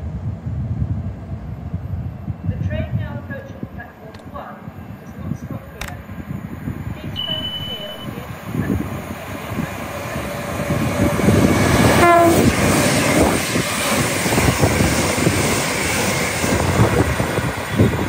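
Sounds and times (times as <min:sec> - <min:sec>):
train rumbling past: 0:00.0 - 0:18.0
train horn: 0:07.2 - 0:08.2, 0:11.8 - 0:12.8.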